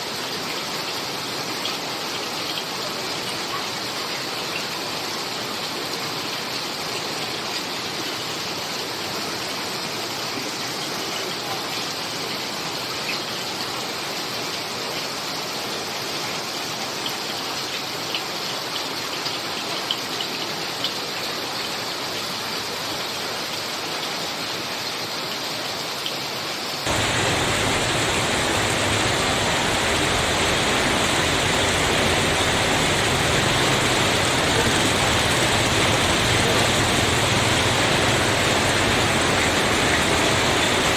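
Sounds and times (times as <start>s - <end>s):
heavy rain pouring: 26.8s - 40.9s.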